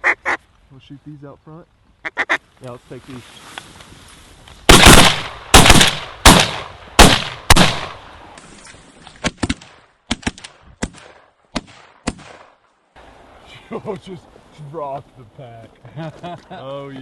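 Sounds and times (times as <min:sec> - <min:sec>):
sharp gunshot cracks: 0:04.7 - 0:08.0, 0:09.2 - 0:12.6
shotgun blasts with echo: 0:04.7 - 0:08.1, 0:09.2 - 0:12.6.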